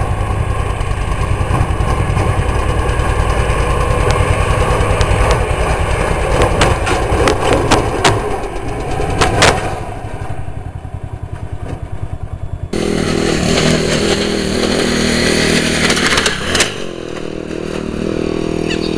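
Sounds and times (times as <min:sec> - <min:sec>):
lawn mower engine chugging: 0:00.0 - 0:18.9
clattering knocks: 0:06.2 - 0:09.8.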